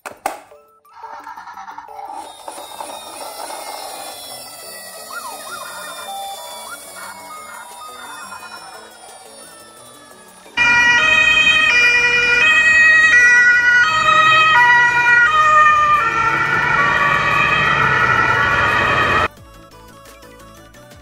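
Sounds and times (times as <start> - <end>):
two-tone police siren: 0.9 - 19.3
road noise: 10.4 - 19.3.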